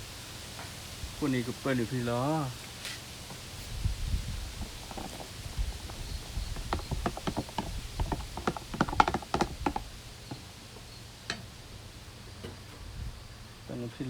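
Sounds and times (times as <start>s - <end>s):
light clicks and knocks: 4.6s - 10.5s.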